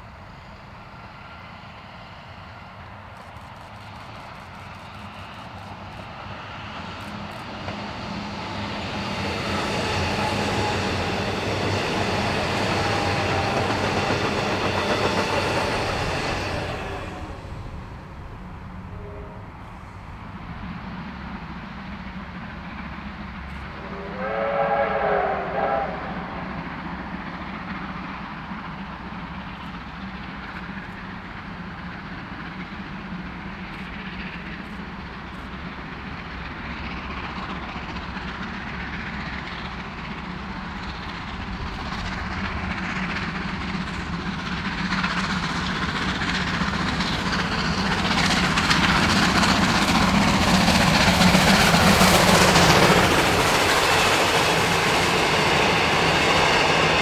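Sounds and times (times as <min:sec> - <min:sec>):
electric train running past: 0:00.0 - 0:57.0
steam locomotive whistle: 0:09.4 - 0:17.5, 0:18.9 - 0:19.6, 0:23.7 - 0:26.6.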